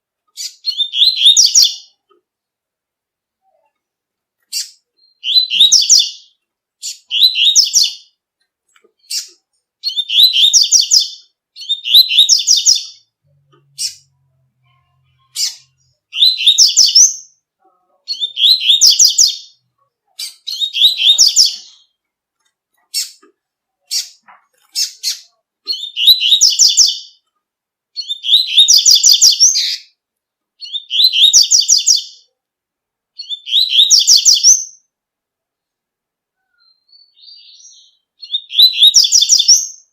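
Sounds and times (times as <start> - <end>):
songbird singing rapid high notes: 4.5 - 8.1, 9.0 - 13.1, 15.2 - 17.4, 18.1 - 19.6, 20.2 - 22.0, 24.8 - 27.1, 36.8 - 39.8.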